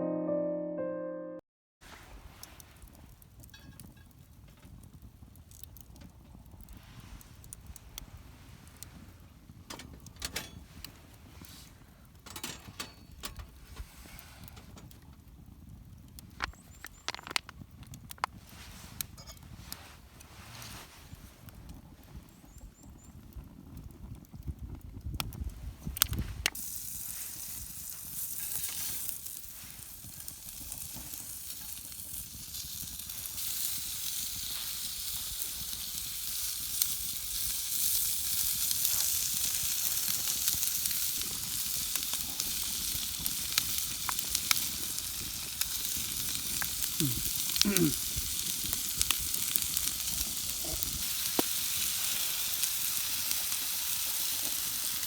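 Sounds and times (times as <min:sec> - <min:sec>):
food sizzling in a pan: 0:26.5 - 0:55.0.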